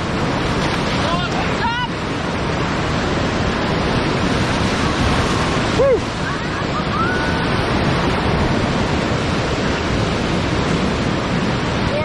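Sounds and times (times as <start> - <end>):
river rapids rushing: 0.0 - 12.0
wind buffeting microphone: 0.0 - 12.0.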